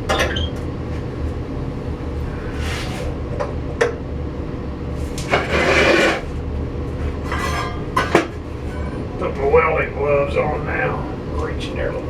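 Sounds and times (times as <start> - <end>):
furnace low rumble: 0.0 - 12.0
metal tool scraping coal: 5.2 - 6.3, 7.2 - 8.0.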